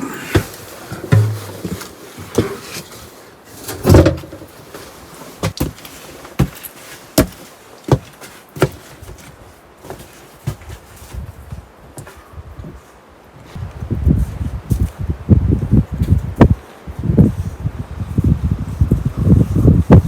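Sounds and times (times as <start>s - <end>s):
heavy thud: 0.4s - 1.9s
sharp knocks: 1.0s - 1.8s.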